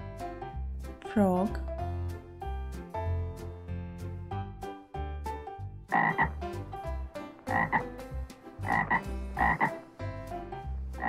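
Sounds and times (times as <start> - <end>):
frog double croaks: 5.9 - 6.4, 7.5 - 7.9, 8.6 - 9.8.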